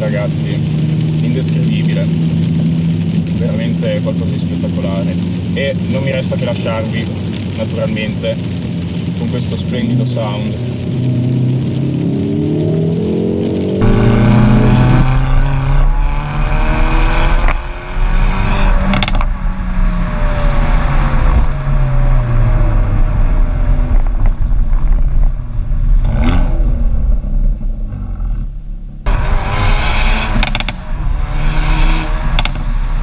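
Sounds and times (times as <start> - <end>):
car engine revving: 0.0 - 33.0
exhaust cracks: 0.0 - 33.0.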